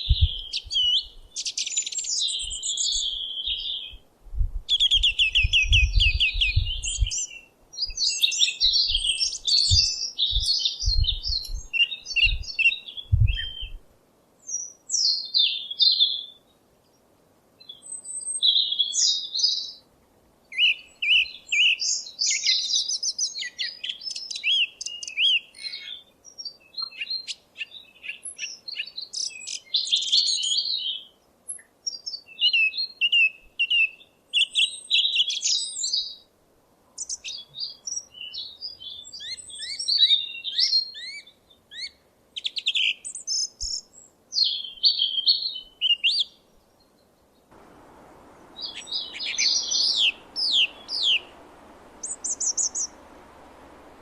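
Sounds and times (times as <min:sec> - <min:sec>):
low thuds: 0:47.5 - 0:54.0
songbirds chirping and singing: 0:47.6 - 0:54.0.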